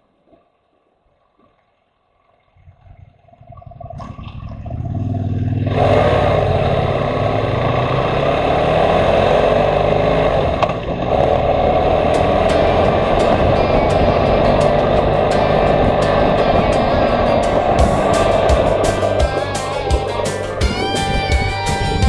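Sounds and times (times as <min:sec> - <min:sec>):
motorcycle engine running: 0:03.4 - 0:22.0.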